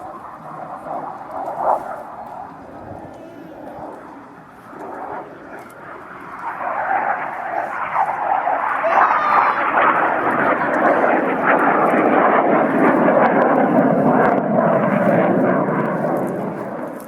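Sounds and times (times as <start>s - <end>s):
airplane flying past: 0.0s - 17.0s.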